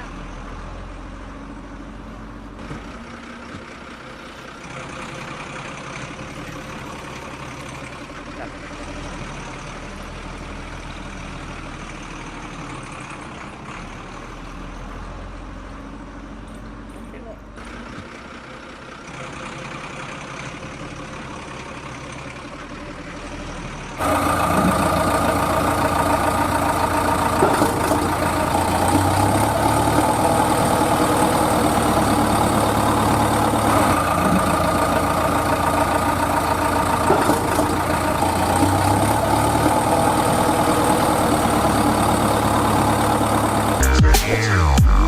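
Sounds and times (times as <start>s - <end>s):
tractor engine idling: 0.0s - 45.0s.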